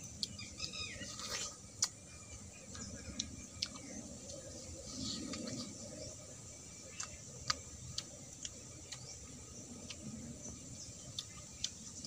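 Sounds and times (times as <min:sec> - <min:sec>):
person chewing raw fruit: 0:00.0 - 0:12.0.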